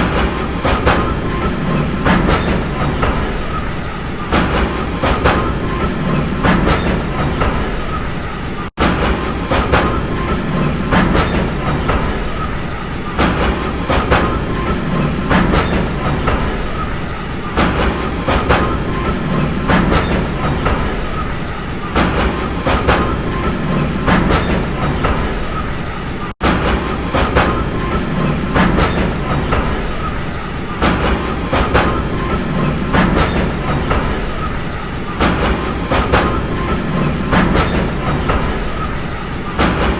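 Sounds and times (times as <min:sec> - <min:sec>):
train rumble on track: 0:00.0 - 0:39.9
wheels clacking over rail joints: 0:00.0 - 0:39.9.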